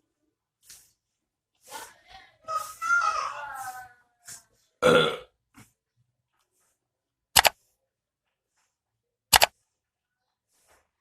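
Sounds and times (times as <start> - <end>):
sharp double clicks: 7.4 - 7.6, 9.3 - 9.5.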